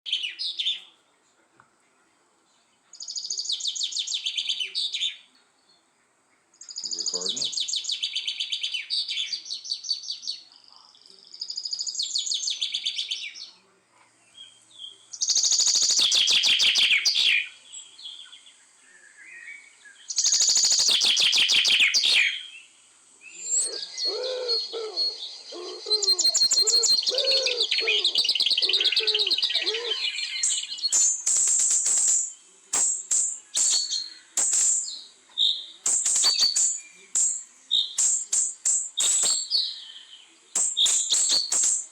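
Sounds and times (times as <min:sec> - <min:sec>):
lower repeated bird calls: 0:03.0 - 0:13.7, 0:14.4 - 0:41.9
high trilled bird chatter: 0:06.6 - 0:10.5, 0:14.5 - 0:17.5, 0:20.0 - 0:22.7, 0:23.3 - 0:41.9.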